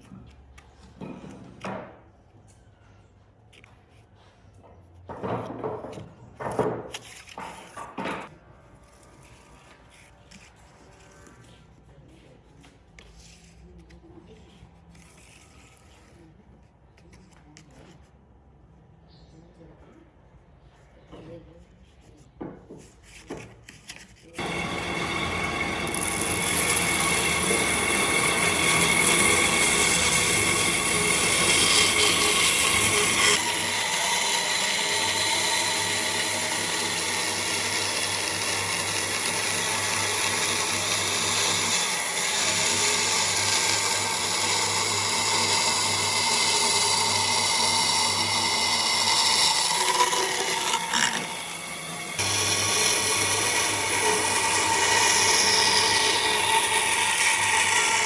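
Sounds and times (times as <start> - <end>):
power tool cutting wood: 24.4 - 58.0.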